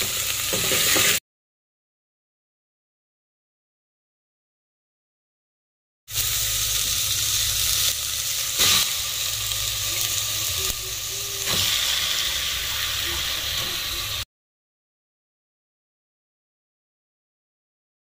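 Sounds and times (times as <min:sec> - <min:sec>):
food sizzling in hot oil: 0:00.0 - 0:01.2, 0:06.1 - 0:14.3.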